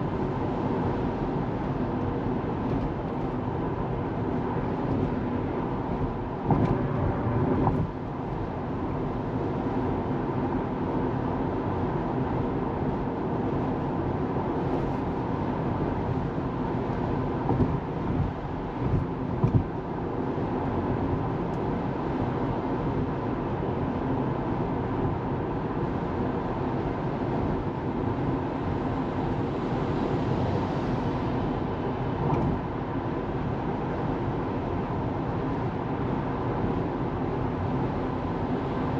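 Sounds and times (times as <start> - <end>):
tyre and road noise: 1.4 - 9.3, 14.4 - 19.8
car bumps: 6.4 - 6.9, 17.5 - 19.7.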